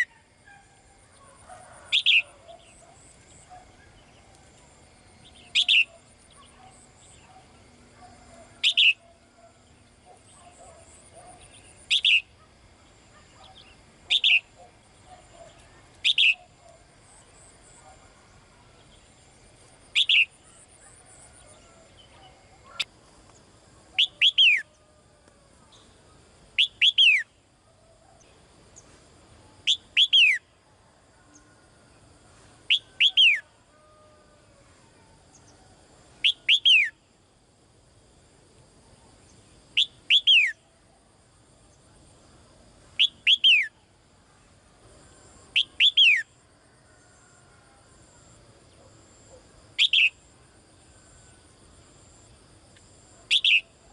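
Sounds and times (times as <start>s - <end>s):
songbird whistled call: 1.9s - 2.8s, 5.2s - 6.4s, 8.6s - 9.1s, 11.4s - 12.3s, 13.4s - 14.5s, 16.0s - 16.6s, 20.0s - 20.4s, 24.0s - 24.7s, 26.6s - 27.3s, 29.7s - 30.4s, 32.7s - 33.4s, 36.2s - 37.0s, 39.8s - 40.6s, 43.0s - 43.8s, 45.6s - 46.3s, 49.8s - 50.2s, 53.3s - 53.7s.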